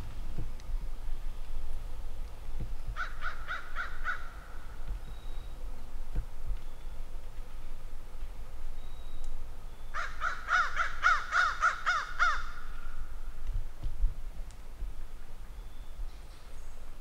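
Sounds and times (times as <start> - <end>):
bird calling clear notes: 3.0 - 5.6, 8.7 - 13.0.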